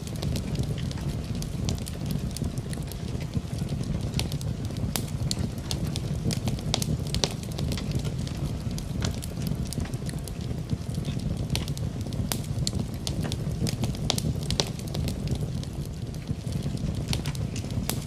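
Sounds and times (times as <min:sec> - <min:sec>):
low rumble of burning: 0:00.0 - 0:18.0
soft hiss of rain: 0:00.0 - 0:18.0
wood fire crackling and popping: 0:00.0 - 0:18.0.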